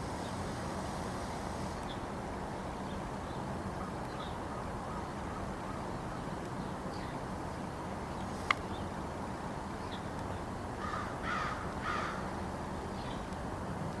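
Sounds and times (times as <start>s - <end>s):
crows cawing: 10.8s - 12.3s.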